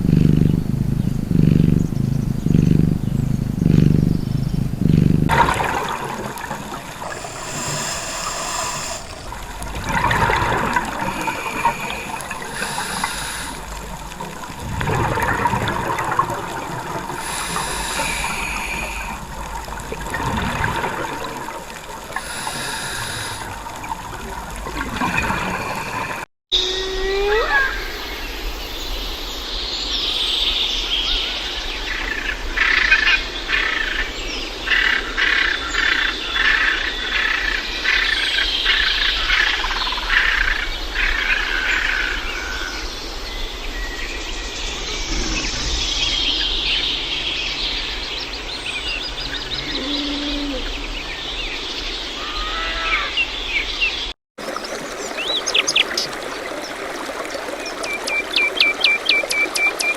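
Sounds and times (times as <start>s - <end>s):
birds singing and chirping: 41.1s - 59.9s.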